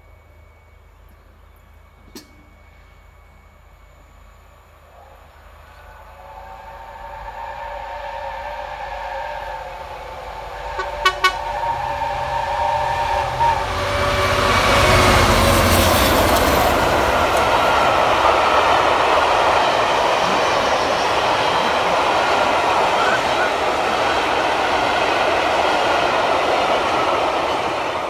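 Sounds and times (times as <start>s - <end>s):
diesel locomotive rumbling past: 0.0s - 28.0s
train wheels rolling on rails: 4.9s - 28.0s
train horn blast: 6.2s - 17.5s.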